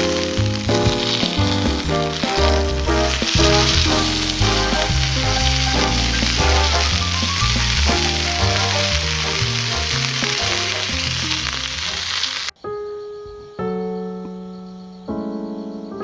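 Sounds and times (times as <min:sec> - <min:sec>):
soft keyboard notes: 0:00.0 - 0:10.7
background music with bass line: 0:00.0 - 0:12.4
food sizzling in a pan: 0:00.0 - 0:12.5.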